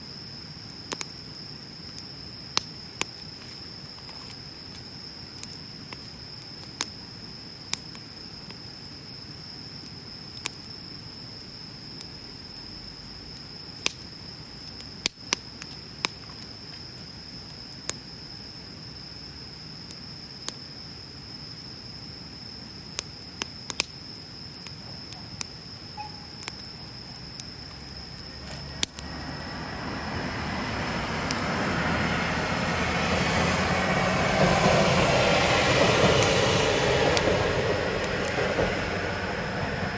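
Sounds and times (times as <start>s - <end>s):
wood bonfire crackling: 0.1s - 39.9s
sharp fire pops: 13.8s - 16.5s, 22.9s - 25.6s, 26.3s - 29.4s
distant engine rumble: 27.7s - 39.9s.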